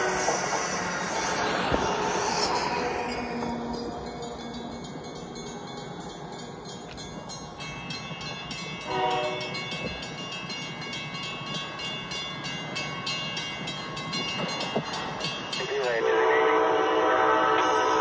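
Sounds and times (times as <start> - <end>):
train horn blast: 0.0 - 0.6, 8.9 - 9.6, 16.0 - 18.0
train running on track: 0.0 - 18.0.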